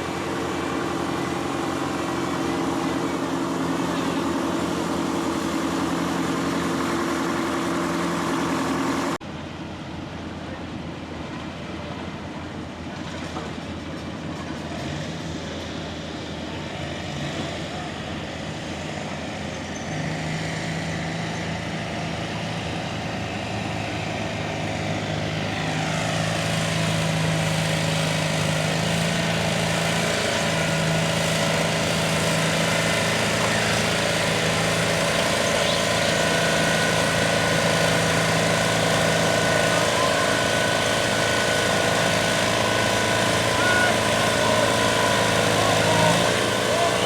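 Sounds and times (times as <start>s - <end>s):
tractor engine humming: 0.0s - 9.2s, 20.4s - 47.0s.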